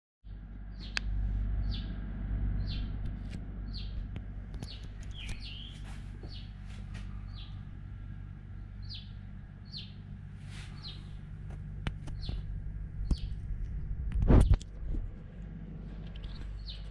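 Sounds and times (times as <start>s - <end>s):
bird chirping: 0.3s - 1.0s, 1.6s - 3.0s, 3.6s - 7.8s, 8.5s - 11.3s, 12.0s - 13.4s, 15.9s - 16.9s
low rumble: 0.3s - 16.9s.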